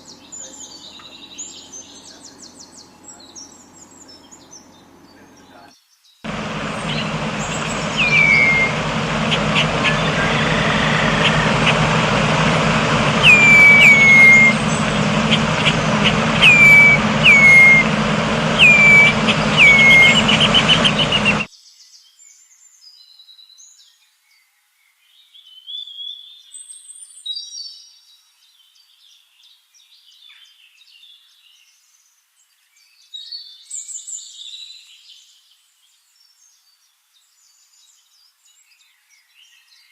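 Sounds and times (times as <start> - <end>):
faint bird chirps: 0.0 - 21.5
bird whistled call sliding down: 6.3 - 21.5
loud steady rushing noise: 6.3 - 21.5.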